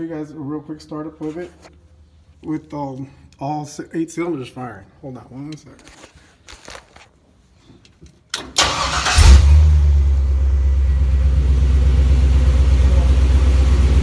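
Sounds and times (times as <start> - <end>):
starter cranking engine: 8.5 - 9.6
engine idling: 8.6 - 14.0.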